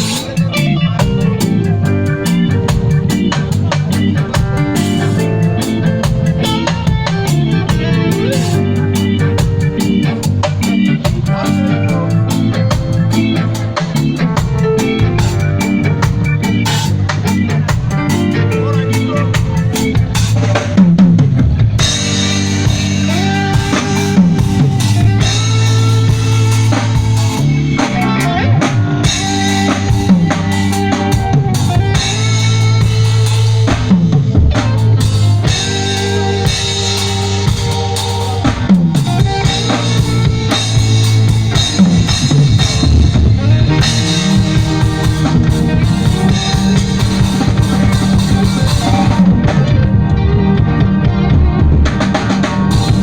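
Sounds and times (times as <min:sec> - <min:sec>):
bass: 0:00.0 - 0:53.0
drum kit beat: 0:00.0 - 0:53.0
guitar: 0:00.0 - 0:53.0.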